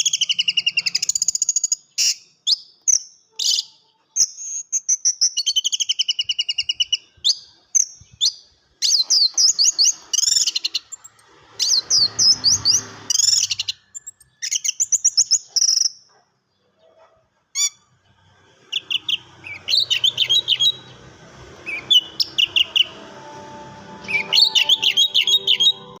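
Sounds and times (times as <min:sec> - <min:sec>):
thrush singing: 0:18.8 - 0:26.0.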